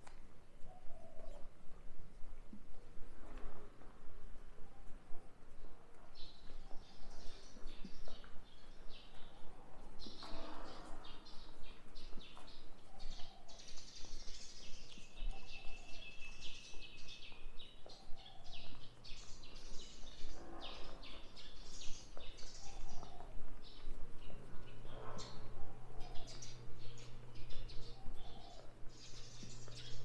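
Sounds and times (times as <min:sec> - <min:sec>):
small birds chirping: 0:00.0 - 0:03.0, 0:04.3 - 0:30.0
steady low hum: 0:18.1 - 0:30.0.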